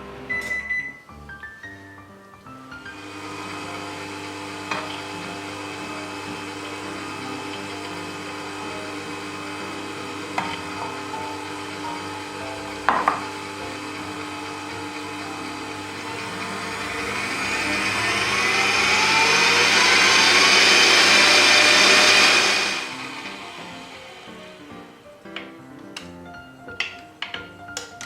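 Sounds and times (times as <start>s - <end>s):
electric hand mixer beating eggs: 2.9s - 25.0s
sharp knocks: 12.9s - 13.3s.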